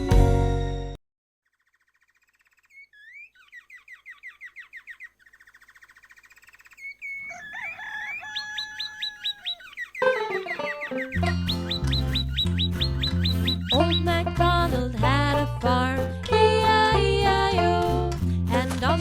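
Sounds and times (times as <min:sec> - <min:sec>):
small birds chirping trills: 0:01.4 - 0:14.3
birds whistling: 0:01.8 - 0:14.2.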